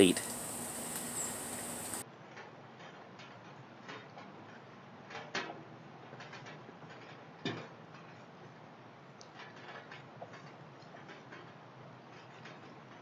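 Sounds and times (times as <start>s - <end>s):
light rain patter: 0.0s - 2.0s
raindrops ticking on surfaces: 0.0s - 2.0s.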